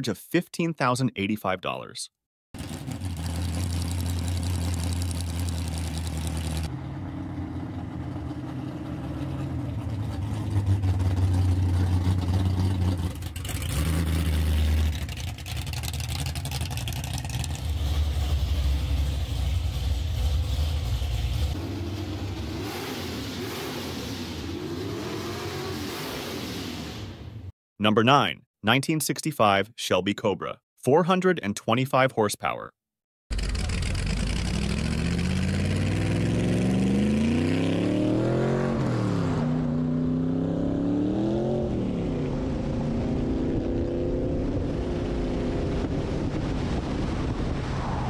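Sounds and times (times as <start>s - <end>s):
car engine idling: 2.6s - 22.3s, 33.3s - 34.8s.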